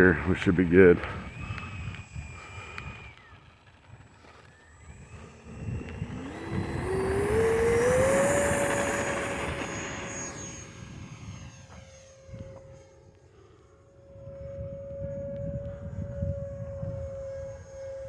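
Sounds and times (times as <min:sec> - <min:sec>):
electric jet whine: 0:00.0 - 0:18.0
fan noise rushing: 0:04.0 - 0:11.8.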